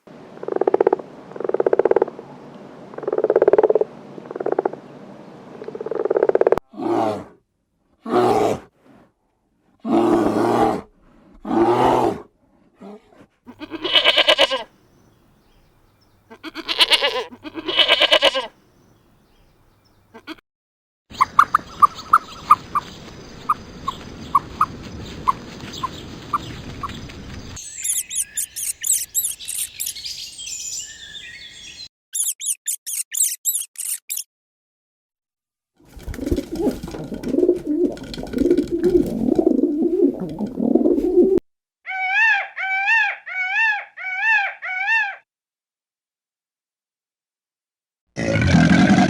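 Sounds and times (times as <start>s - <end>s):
drawn-out animal calls: 13.5s - 14.7s, 16.3s - 18.5s
short high peeps: 27.6s - 29.9s, 32.2s - 34.3s
high chirping: 27.6s - 34.3s.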